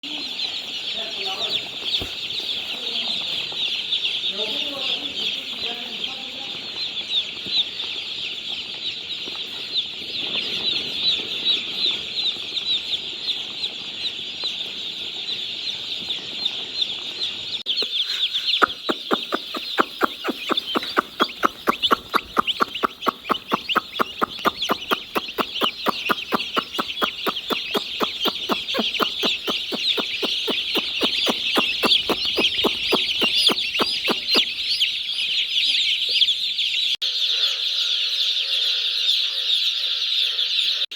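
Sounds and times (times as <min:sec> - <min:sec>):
chickens cheeping and clucking: 0:00.0 - 0:40.9
fast even clicking: 0:18.6 - 0:34.6.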